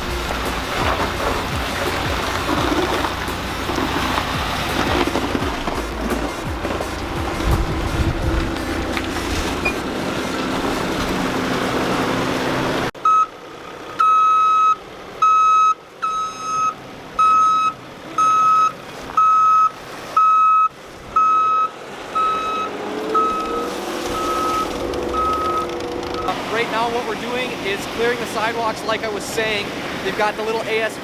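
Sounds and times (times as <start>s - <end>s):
rushing noise: 0.0s - 12.9s
low engine drone: 0.0s - 14.2s, 21.4s - 30.1s
vehicle backup alarm beeping: 8.8s - 10.0s, 13.0s - 27.6s.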